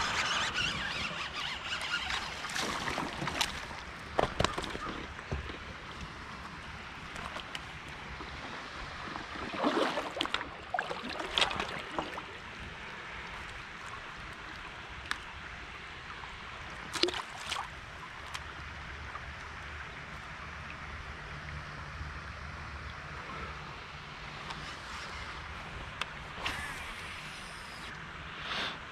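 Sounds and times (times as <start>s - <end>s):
water splashing around kayak: 0.2s - 15.4s, 16.7s - 18.5s.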